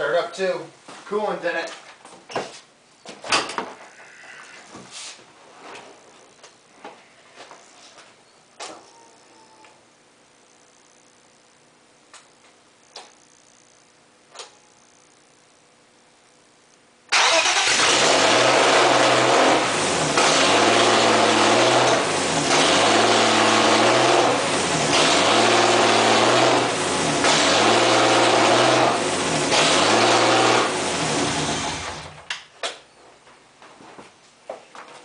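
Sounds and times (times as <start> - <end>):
car engine revving: 17.1 - 32.2.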